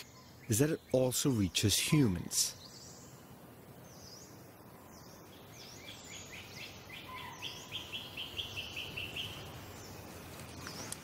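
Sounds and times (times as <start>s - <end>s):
forest ambience: 0.0s - 11.0s
bird higher calls: 4.0s - 10.0s.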